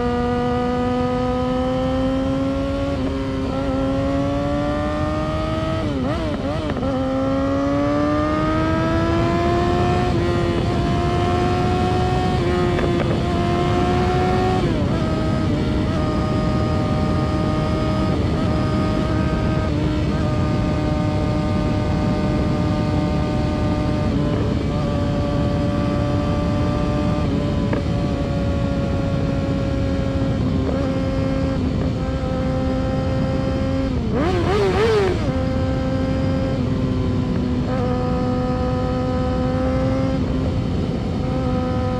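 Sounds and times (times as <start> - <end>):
motorcycle engine revving high: 0.0 - 41.9.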